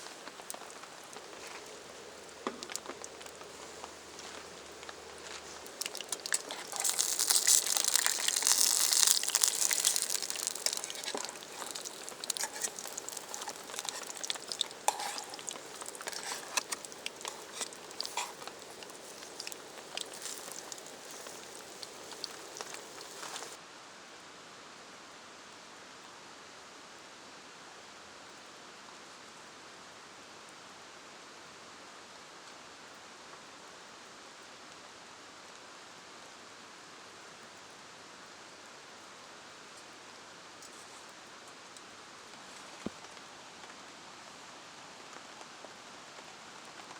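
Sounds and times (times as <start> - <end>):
food sizzling over campfire: 0.0 - 23.6
pops and crackles: 0.0 - 23.6
steady hiss: 0.0 - 23.6.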